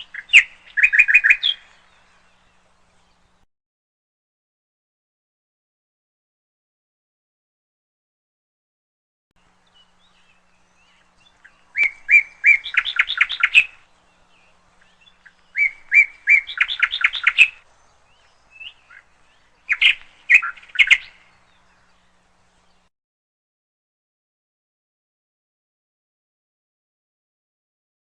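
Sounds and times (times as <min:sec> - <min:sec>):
canary chirping: 0:11.0 - 0:13.8, 0:14.9 - 0:17.6, 0:18.4 - 0:21.4.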